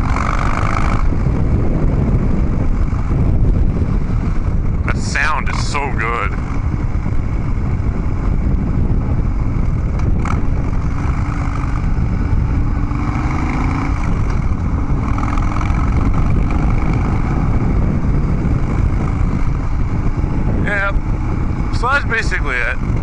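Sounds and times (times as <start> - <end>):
motorcycle engine cruising: 0.0 - 23.0.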